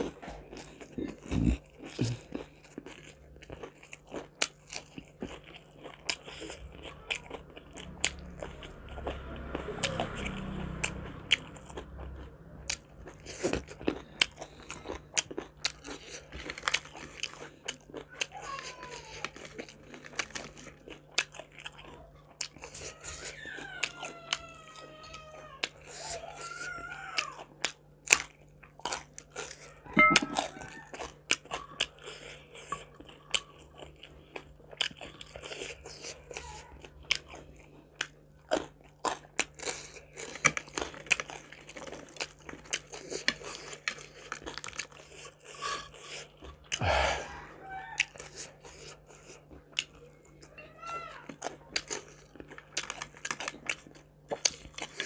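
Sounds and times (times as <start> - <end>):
person crunching and chewing: 0.0 - 24.9, 25.6 - 50.5, 51.2 - 55.0
low steady hum: 29.4 - 35.4.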